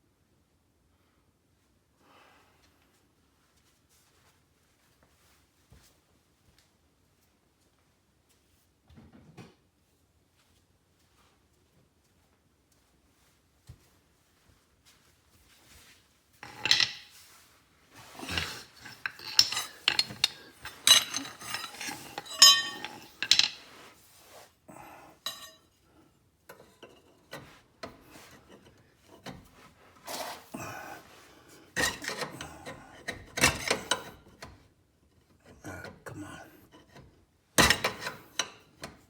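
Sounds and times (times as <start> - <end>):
hand tools clinking on steel: 16.4 - 17.2, 18.0 - 23.9, 25.2 - 25.6.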